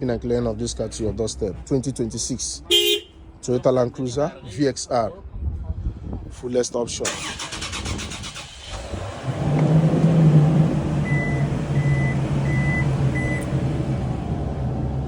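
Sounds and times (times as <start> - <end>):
car engine starting and idling: 7.0 - 15.0.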